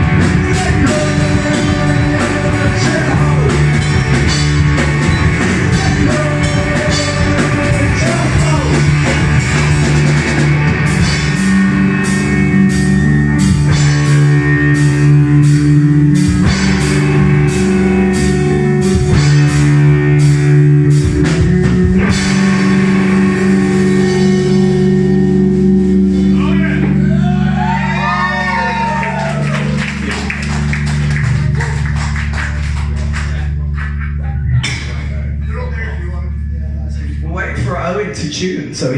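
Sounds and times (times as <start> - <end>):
steady drum beat: 0.0 - 27.1
distorted electric guitar chords: 0.0 - 38.9.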